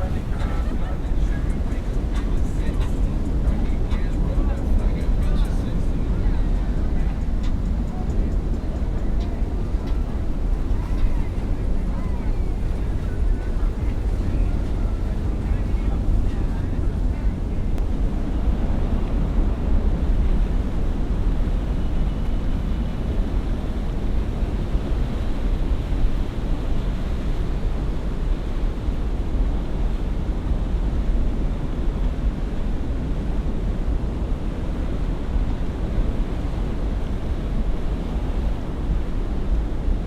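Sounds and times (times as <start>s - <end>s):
boat engines rumbling: 0.0s - 40.0s
water: 0.0s - 40.0s
wind on microphone: 0.0s - 40.0s.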